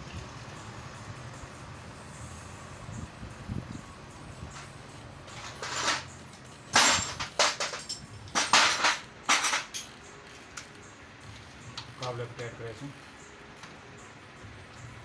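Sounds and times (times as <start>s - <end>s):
metal tools clanking: 4.5s - 10.7s.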